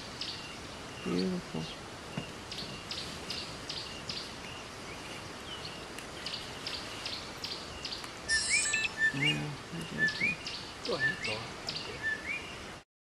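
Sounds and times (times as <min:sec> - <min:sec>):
birds chirping: 0:00.0 - 0:12.8
bird whistling: 0:08.3 - 0:12.5.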